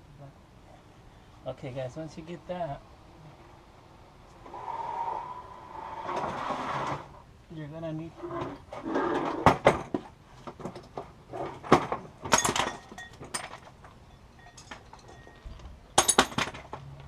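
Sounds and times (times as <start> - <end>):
metal tools clinking together: 12.3 - 16.6.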